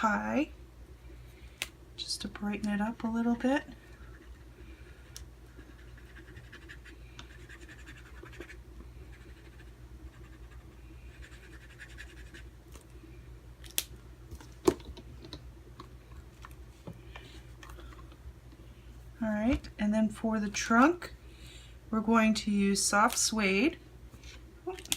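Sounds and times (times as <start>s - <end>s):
marker scratching on paper: 5.6s - 12.5s.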